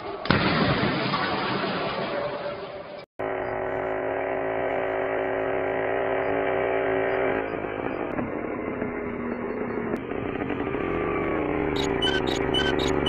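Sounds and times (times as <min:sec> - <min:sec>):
motorcycle engine running: 0:03.2 - 0:13.0.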